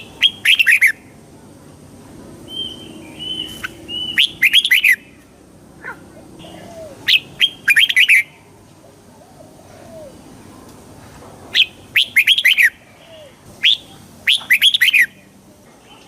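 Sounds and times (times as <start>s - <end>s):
bird singing whistled notes: 0.0s - 1.1s, 2.4s - 5.2s, 6.4s - 8.4s, 11.5s - 15.4s.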